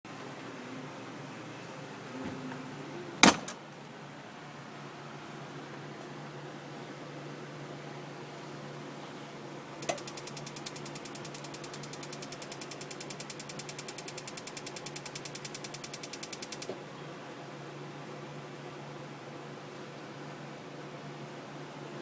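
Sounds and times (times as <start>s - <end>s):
spark igniter ticking: 9.8s - 16.7s
steady low hum: 9.8s - 16.7s.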